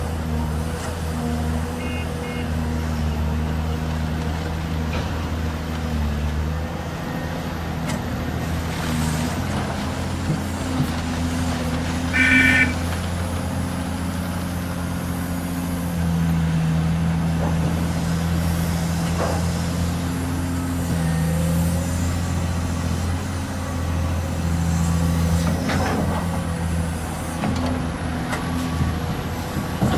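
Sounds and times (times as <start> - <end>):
heavy machinery diesel engine: 0.0 - 29.9
short high beep: 12.2 - 12.8.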